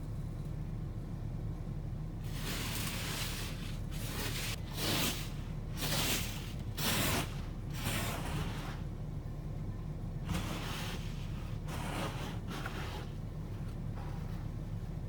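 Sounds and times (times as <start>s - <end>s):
steady low hum: 0.0s - 15.0s
brush sweeping snow off windshield: 2.2s - 9.0s, 10.3s - 13.3s.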